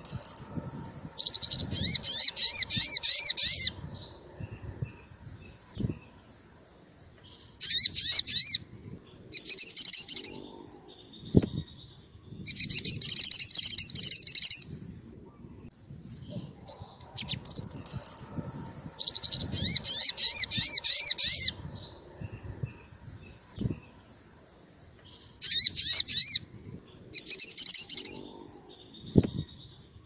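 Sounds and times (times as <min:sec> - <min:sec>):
bird trilled chirps: 0:01.2 - 0:05.0, 0:19.0 - 0:22.5, 0:27.1 - 0:29.8.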